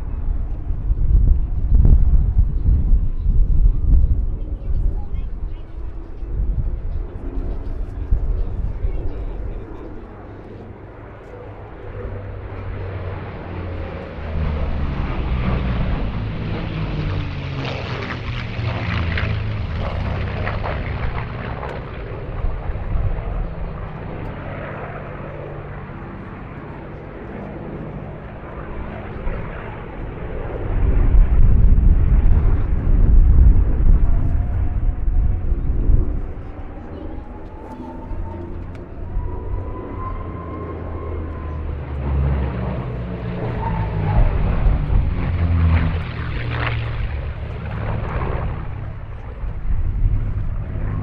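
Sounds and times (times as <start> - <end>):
deep low rumble: 0.0 - 9.6, 30.7 - 40.3
propeller planes flying past: 0.0 - 51.0.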